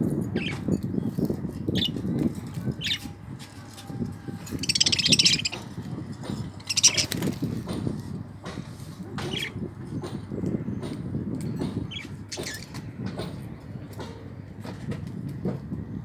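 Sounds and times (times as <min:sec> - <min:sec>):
buzzy bird chatter: 0:00.3 - 0:08.1, 0:09.2 - 0:13.3
budgerigars chirping: 0:02.8 - 0:03.1, 0:04.5 - 0:05.7, 0:06.5 - 0:07.3.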